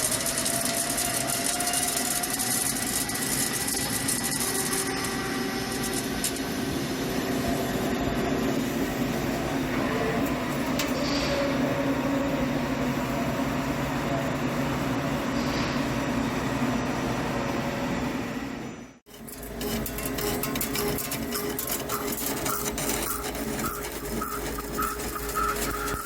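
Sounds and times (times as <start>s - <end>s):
lathe machining drone: 0.0s - 16.2s.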